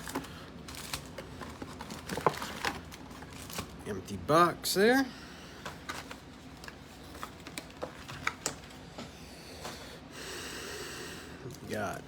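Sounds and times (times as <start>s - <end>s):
card packs clicking and rustling: 0.0s - 3.8s, 5.6s - 8.8s.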